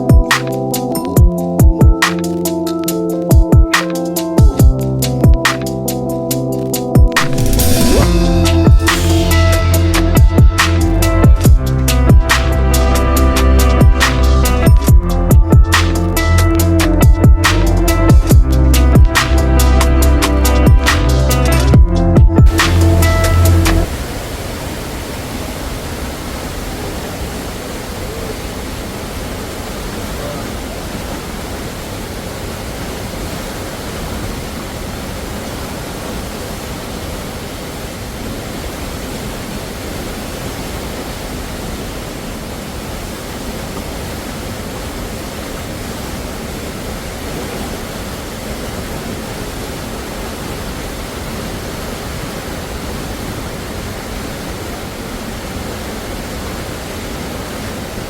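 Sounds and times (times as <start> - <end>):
waterfall roar: 7.2 - 11.9, 22.4 - 58.0.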